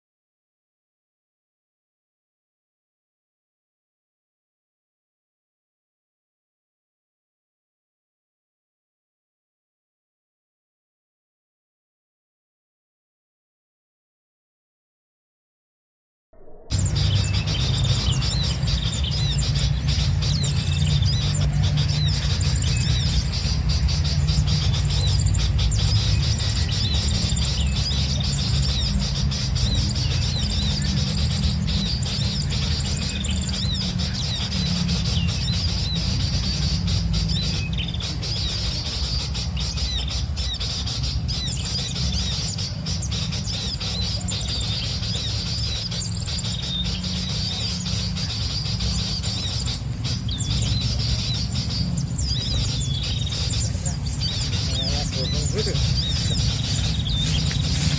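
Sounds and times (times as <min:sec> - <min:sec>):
steady low rumble: 0:16.4 - 0:57.9
small birds chirping: 0:16.7 - 0:57.9.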